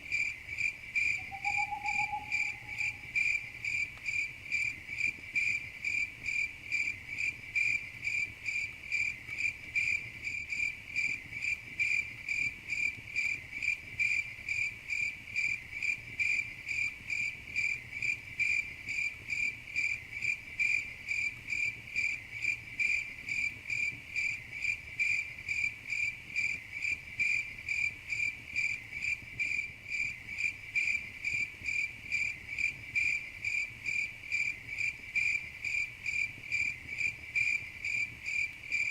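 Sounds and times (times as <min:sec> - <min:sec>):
crickets chirping: 0:00.1 - 0:04.7
faint low rumble: 0:01.2 - 0:03.6.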